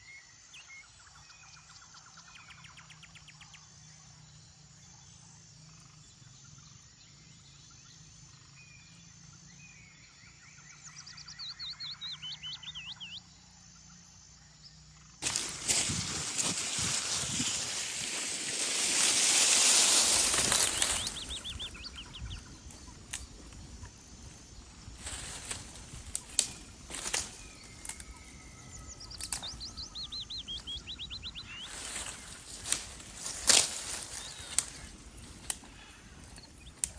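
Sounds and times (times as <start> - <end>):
birds trilling and whistling: 15.2 - 36.9
rush of wind: 15.2 - 36.9
sharp cracks and taps: 20.2 - 24.0, 25.0 - 28.1, 29.1 - 29.9, 31.7 - 36.9.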